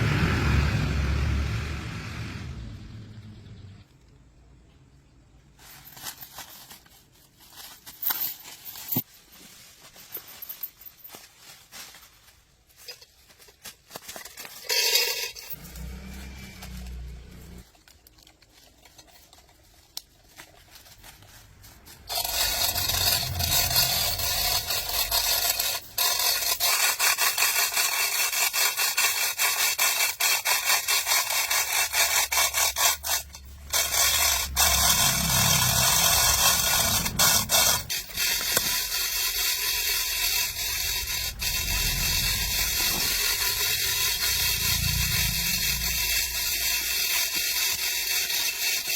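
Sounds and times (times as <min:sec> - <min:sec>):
tool scraping a surface: 0:21.6 - 0:48.9.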